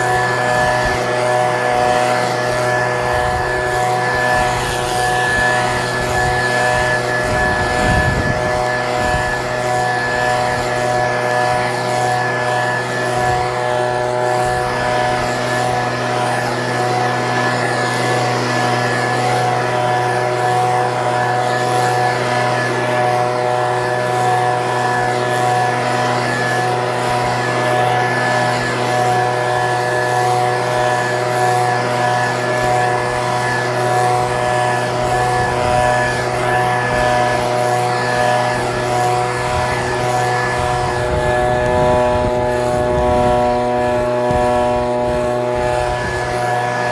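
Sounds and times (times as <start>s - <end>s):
leaf blower engine running: 0.0s - 46.9s.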